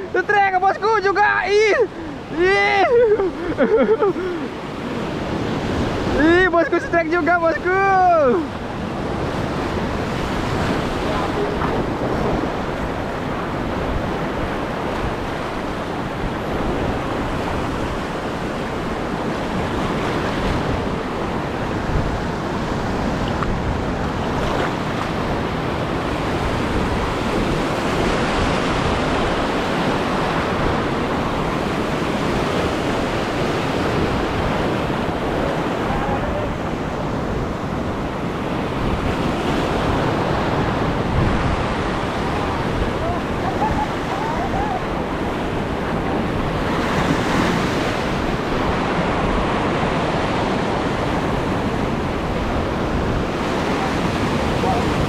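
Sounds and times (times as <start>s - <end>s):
waves washing over reef: 0.0s - 55.0s
wind buffeting microphone: 0.0s - 55.0s.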